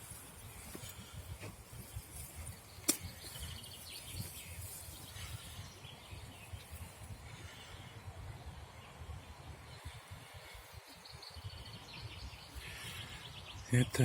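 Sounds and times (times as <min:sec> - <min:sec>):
wind rumbling on microphone: 0:00.0 - 0:13.8.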